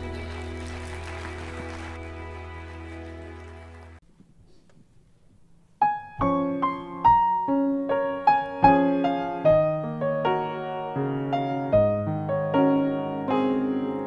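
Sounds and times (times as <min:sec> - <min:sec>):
piano playing hymn: 0:05.8 - 0:14.0.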